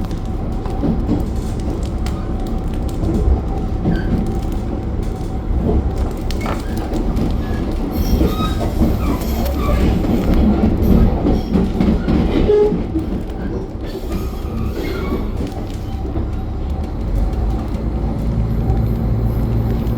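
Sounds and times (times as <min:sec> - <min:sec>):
rail clicks: 0:00.0 - 0:19.9
train wheels and engine rumbling: 0:00.0 - 0:19.9
high wheel squeaks: 0:06.4 - 0:16.3.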